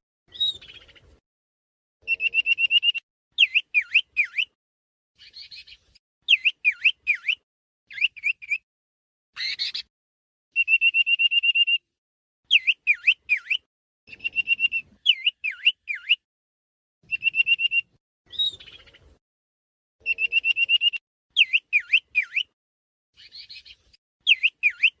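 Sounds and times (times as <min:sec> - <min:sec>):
bird trilling and singing: 0:00.3 - 0:01.0, 0:02.0 - 0:04.6, 0:05.2 - 0:08.6, 0:09.4 - 0:09.9, 0:12.5 - 0:16.2, 0:17.1 - 0:19.0, 0:20.0 - 0:22.5, 0:23.2 - 0:25.0.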